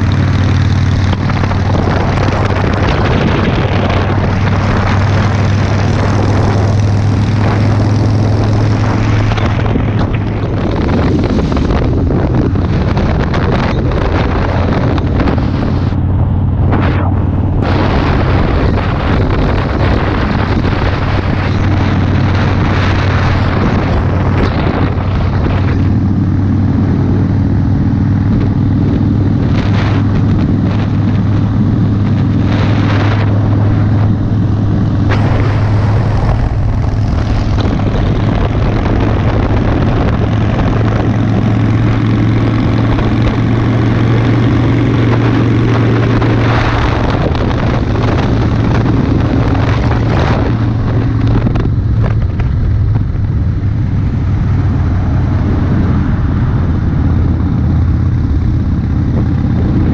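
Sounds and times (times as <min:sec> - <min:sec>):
motorcycle engine cruising: 0:00.0 - 0:59.9
wind buffeting microphone: 0:00.0 - 0:59.9.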